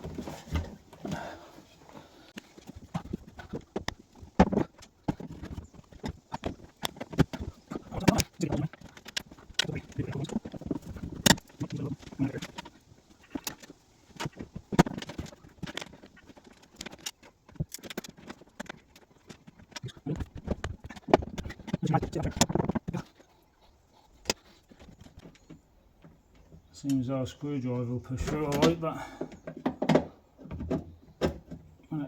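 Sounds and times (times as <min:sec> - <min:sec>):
rustling: 0:00.0 - 0:31.7.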